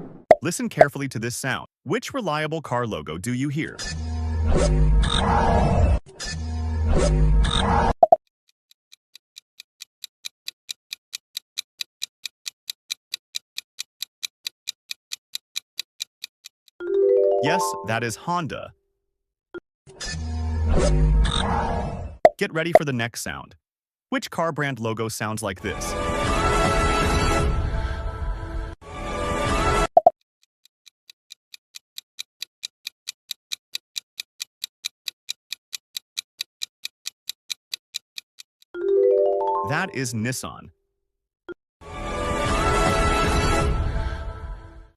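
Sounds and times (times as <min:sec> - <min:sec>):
ticking clock: 0:08.7 - 0:16.9, 0:30.0 - 0:38.8.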